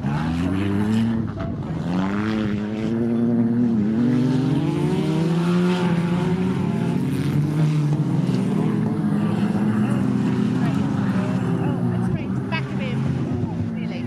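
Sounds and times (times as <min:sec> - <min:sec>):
racing car engines: 0:00.0 - 0:14.0.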